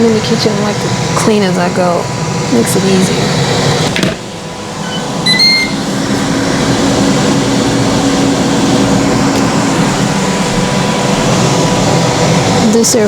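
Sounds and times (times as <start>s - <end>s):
air fryer fan whirring: 0.0s - 13.0s
electronic beeps: 4.8s - 5.9s.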